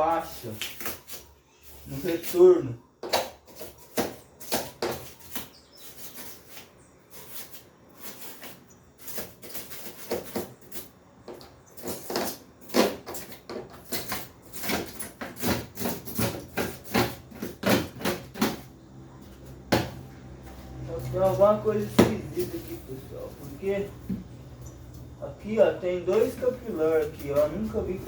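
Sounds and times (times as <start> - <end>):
scraping and cracking with tools: 3.0 - 25.2.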